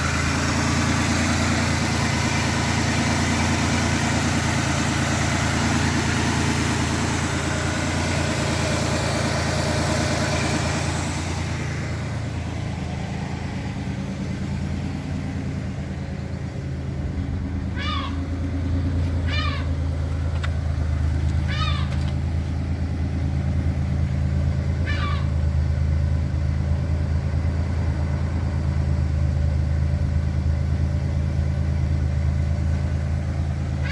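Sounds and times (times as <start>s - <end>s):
car engine idling: 0.0s - 33.9s
short high falling calls: 17.6s - 18.4s, 19.0s - 19.9s, 21.4s - 22.1s, 24.8s - 25.4s.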